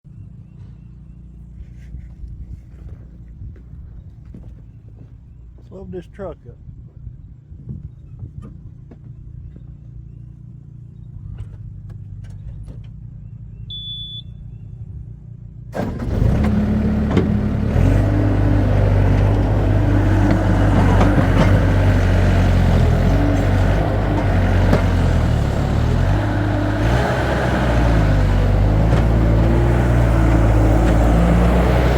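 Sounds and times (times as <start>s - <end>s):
short high beep: 13.7s - 14.4s
heavy equipment engine: 15.7s - 31.9s.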